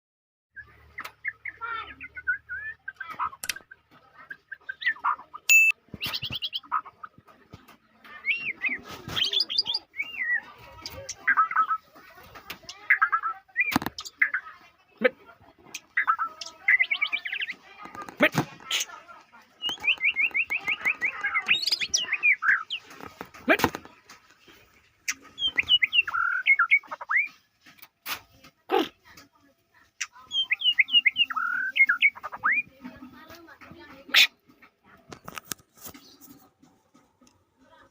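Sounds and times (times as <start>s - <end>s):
bird singing whistled notes: 0.6s - 3.0s, 4.8s - 6.6s, 19.6s - 22.8s, 25.4s - 27.3s, 30.3s - 32.7s
sharp click: 3.4s - 3.6s.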